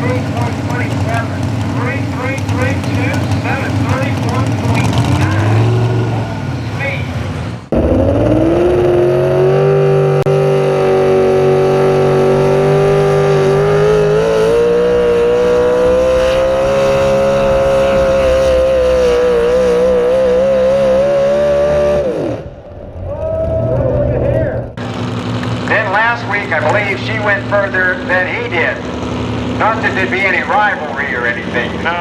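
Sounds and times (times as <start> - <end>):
truck engine at full throttle: 0.0 - 32.0.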